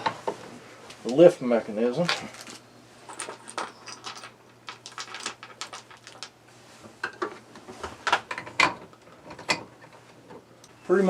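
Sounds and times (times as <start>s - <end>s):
small parts clicking and tapping: 2.1s - 6.4s.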